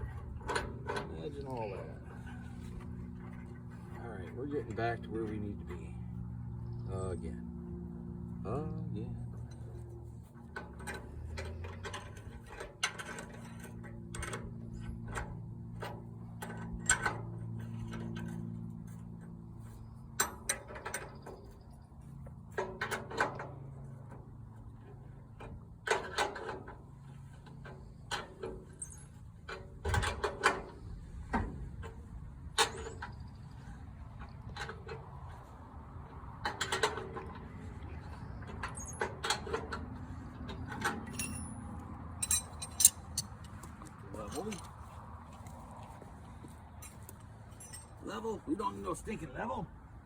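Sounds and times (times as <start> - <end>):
hand tools clanking on metal: 0.0 - 5.8, 9.3 - 21.7, 22.4 - 35.5, 36.4 - 44.9, 46.8 - 49.5.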